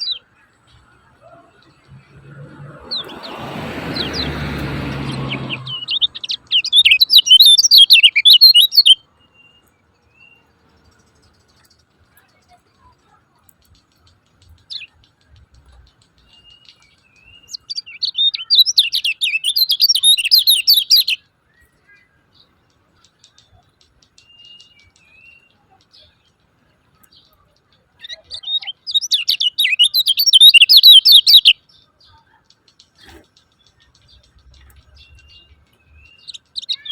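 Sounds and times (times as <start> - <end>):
soft whistled bird notes: 0.0 - 36.9
bird chattering chirps: 1.3 - 9.0, 13.6 - 21.2, 27.0 - 36.9.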